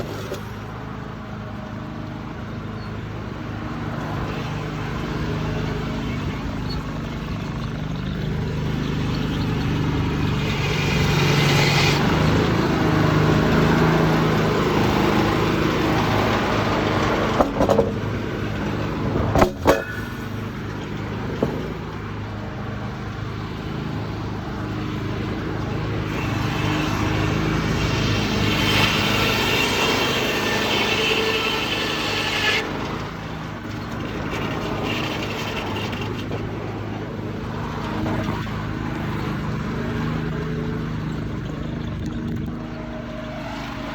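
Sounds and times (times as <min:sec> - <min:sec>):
saw cutting timber: 0:00.0 - 0:00.7, 0:08.2 - 0:22.0, 0:24.4 - 0:37.1
muffled diesel engine drone: 0:00.0 - 0:43.9
sharp knocks: 0:19.3 - 0:20.2.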